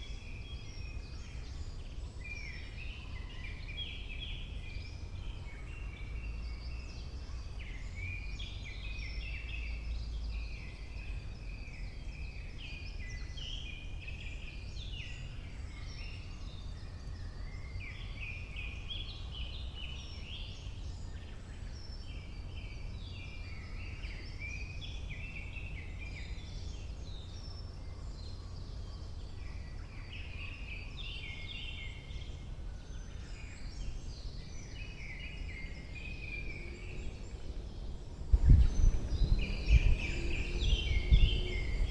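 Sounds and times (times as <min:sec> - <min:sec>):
songbirds chirping and trilling: 0:00.0 - 0:41.9
steady low rumble: 0:36.0 - 0:41.9.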